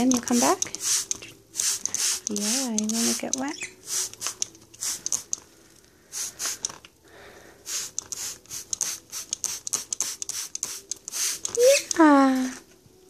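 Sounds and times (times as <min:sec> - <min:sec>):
spray bottle hissing squirts: 0:00.1 - 0:05.4, 0:06.1 - 0:06.8, 0:07.6 - 0:12.0.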